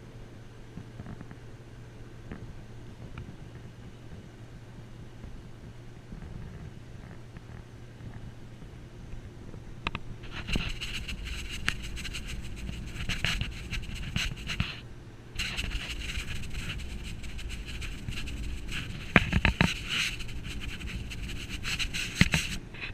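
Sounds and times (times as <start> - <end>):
crackling and scraping: 10.2 - 14.8, 15.4 - 22.9.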